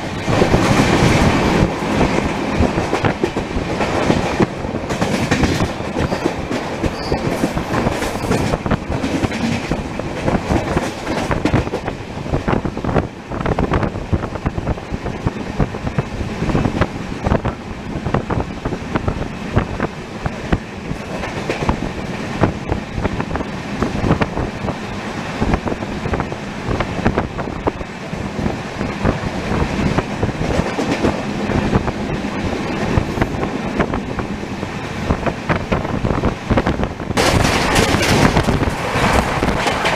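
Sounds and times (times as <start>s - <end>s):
wheels clicking over rail joints: 0.0s - 12.0s, 37.2s - 39.9s
train wheels rumbling on track: 0.0s - 39.9s.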